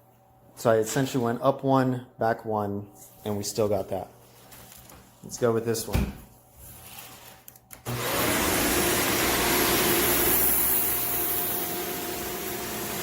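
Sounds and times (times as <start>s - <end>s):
vacuum cleaner motor whine: 7.8s - 13.0s.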